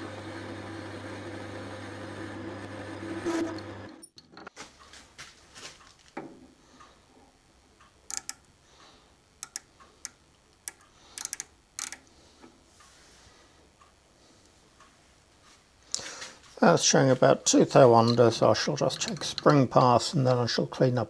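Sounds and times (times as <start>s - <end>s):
metal lathe running: 0.0s - 4.0s, 17.6s - 20.5s
light clicks and ticks: 7.8s - 8.6s, 9.4s - 12.5s.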